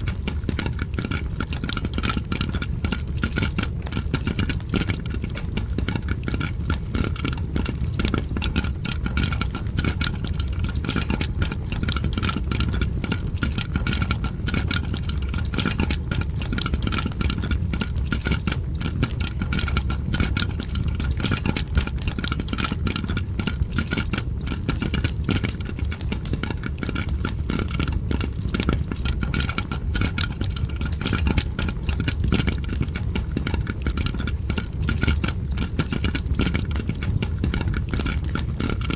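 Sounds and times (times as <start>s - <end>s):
popcorn popping: 0.0s - 38.9s.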